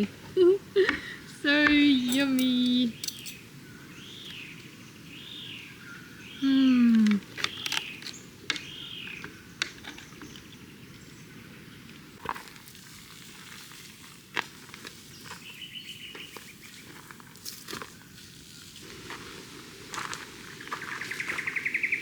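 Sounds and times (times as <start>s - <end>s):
birds chirping and trilling: 0.8s - 12.2s, 20.5s - 22.0s
outdoor hiss: 18.2s - 21.9s.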